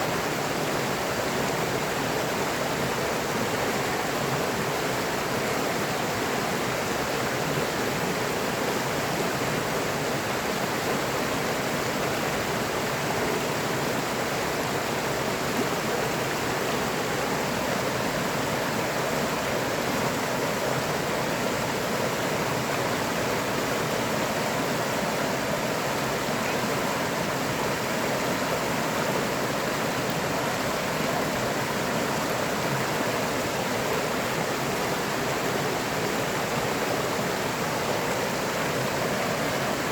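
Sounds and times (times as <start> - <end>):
river water rushing over stones: 0.0 - 39.9.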